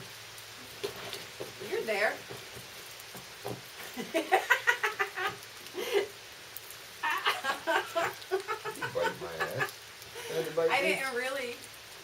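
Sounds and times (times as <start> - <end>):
people talking and laughing: 7.0 - 11.2.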